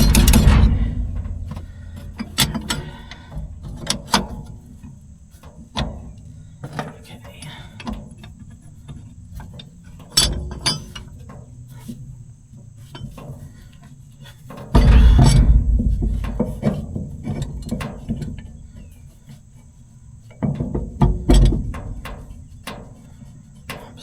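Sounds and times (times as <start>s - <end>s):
heavy low rumbles: 0.0s - 4.5s, 14.8s - 18.8s.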